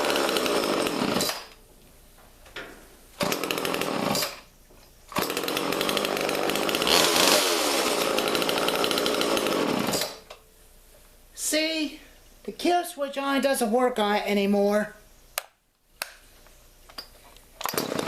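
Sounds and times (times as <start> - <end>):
chainsaw engine revving: 0.0 - 1.5, 3.2 - 4.4, 5.2 - 10.2, 17.7 - 18.0.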